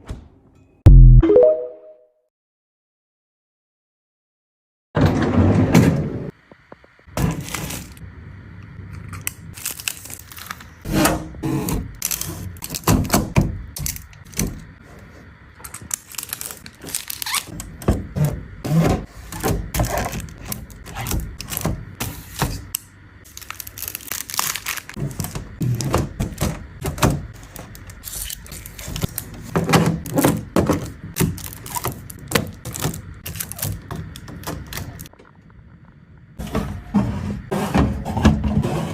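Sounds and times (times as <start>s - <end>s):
plastic crinkling: 9.5s - 10.8s, 15.8s - 17.6s, 23.3s - 25.9s, 27.4s - 35.1s.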